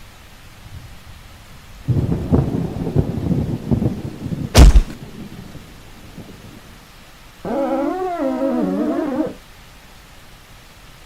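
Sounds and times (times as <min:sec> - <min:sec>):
steady rain: 0:00.0 - 0:11.0
creature howling cry: 0:07.4 - 0:09.4.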